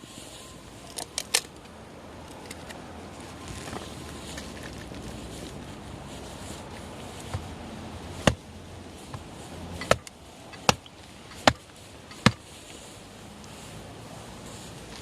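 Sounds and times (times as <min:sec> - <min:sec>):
axe chopping firewood: 0:08.2 - 0:08.5, 0:09.1 - 0:12.5.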